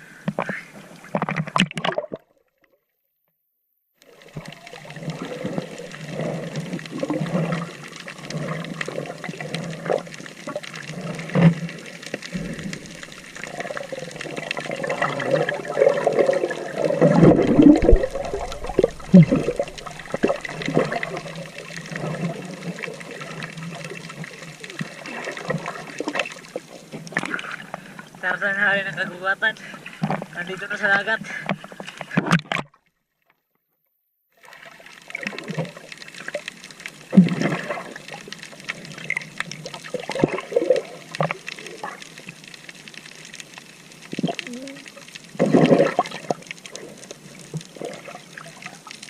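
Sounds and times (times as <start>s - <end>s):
seawater splashing around waders: 12.3s - 23.2s.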